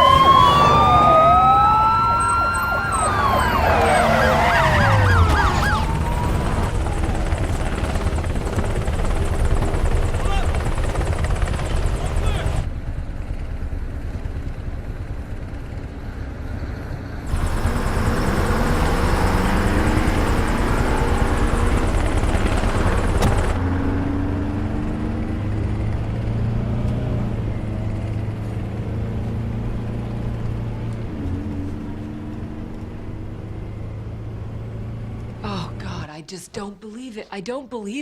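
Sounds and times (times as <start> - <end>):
helicopter engine: 0.0 - 16.0, 17.3 - 23.6
vehicle engine: 0.0 - 36.1.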